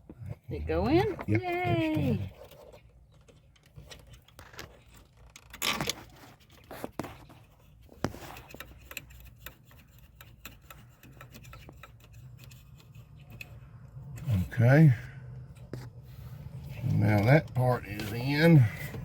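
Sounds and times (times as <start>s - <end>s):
plastic and metal clicks and scrapes: 0.8s - 14.6s
low steady hum: 8.9s - 19.0s.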